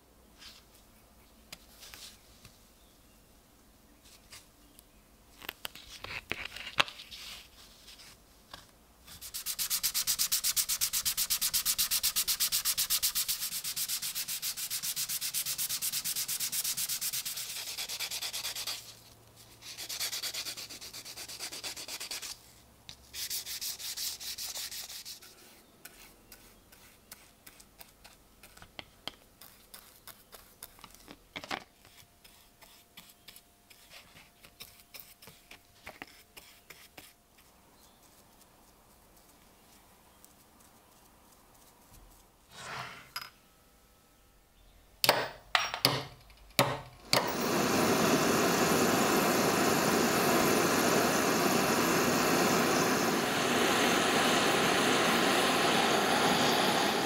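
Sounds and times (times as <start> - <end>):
sanding scratching: 9.2 - 19.0, 19.6 - 22.4, 23.2 - 27.9.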